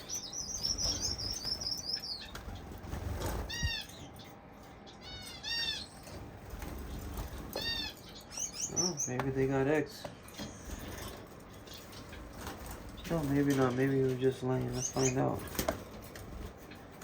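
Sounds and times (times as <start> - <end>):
wings fluttering in cage: 0.0 - 3.9, 6.0 - 8.1, 10.3 - 17.0
finches twittering song: 0.0 - 15.6.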